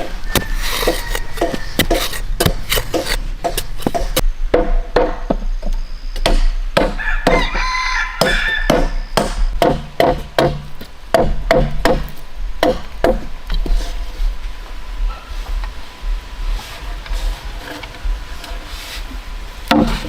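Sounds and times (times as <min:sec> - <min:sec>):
rooster crowing: 0:00.0 - 0:02.2, 0:07.0 - 0:09.0
blade chopping wood: 0:19.7 - 0:20.0.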